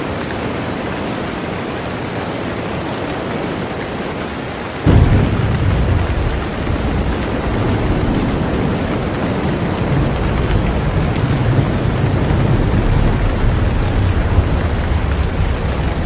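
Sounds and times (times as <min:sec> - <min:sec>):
heavy rain on a boat: 0:00.0 - 0:16.0
deep low rumble: 0:04.9 - 0:16.0.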